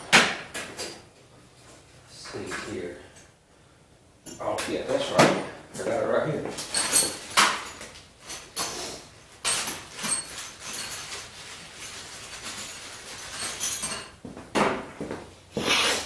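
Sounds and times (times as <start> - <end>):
metal tools clinking: 6.5 - 14.2.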